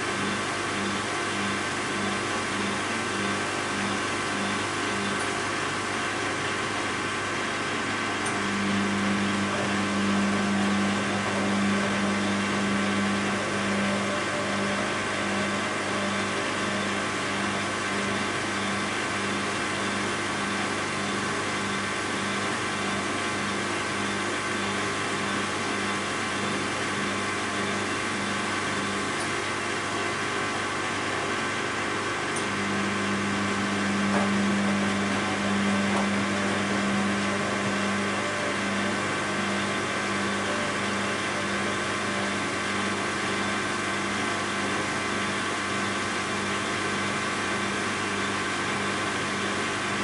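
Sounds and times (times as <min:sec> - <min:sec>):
washing machine motor hum: 0:00.0 - 0:50.0
low tone: 0:08.2 - 0:19.0, 0:32.3 - 0:43.3
low hum: 0:32.4 - 0:41.6.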